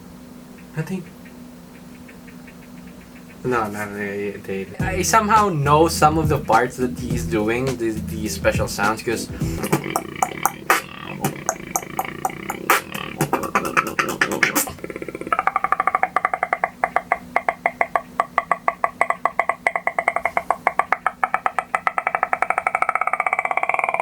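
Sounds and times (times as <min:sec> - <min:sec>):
pulsing buzzing vocal tone: 0:04.5 - 0:19.5
mouth clicks: 0:08.8 - 0:24.0.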